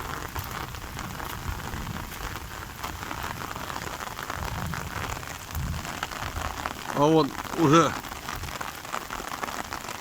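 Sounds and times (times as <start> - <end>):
heavy rain hissing: 0.0 - 10.0
raindrop hits: 0.0 - 10.0.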